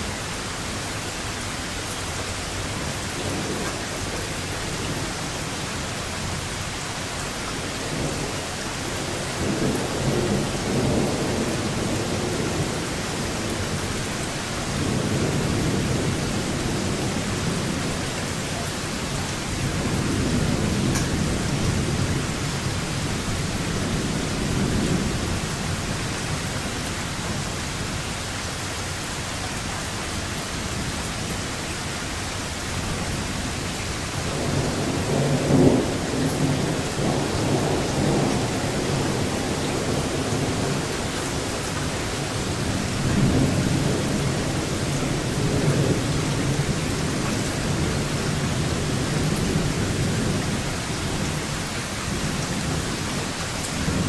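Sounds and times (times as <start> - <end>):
steady rain falling: 0.0 - 54.0
rolling thunder: 7.8 - 27.6, 32.8 - 54.0.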